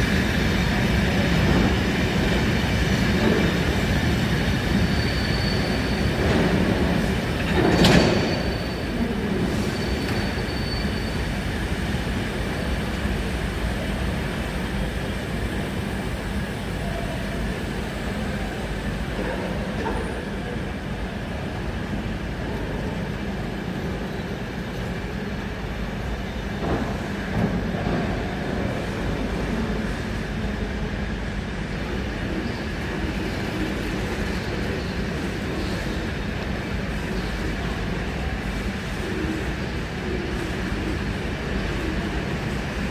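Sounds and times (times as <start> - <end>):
train wheels and engine rumbling: 0.0 - 42.9
faint high squeal: 4.8 - 6.2, 8.0 - 11.3.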